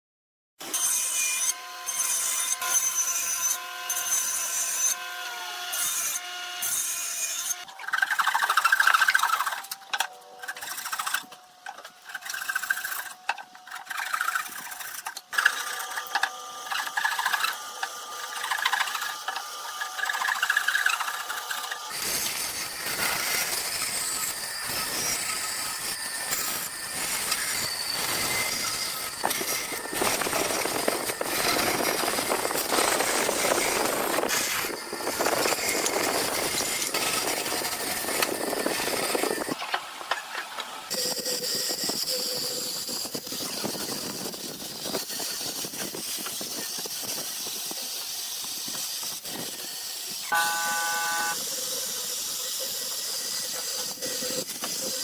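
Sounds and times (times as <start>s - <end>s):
woodworking tool whining: 0.6s - 55.0s
scraping and rubbing wood: 7.6s - 24.2s.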